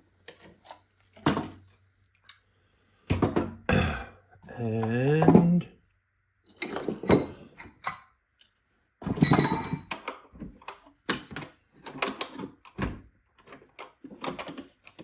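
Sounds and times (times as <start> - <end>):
metal tools clinking: 6.6 - 8.0, 9.1 - 10.0.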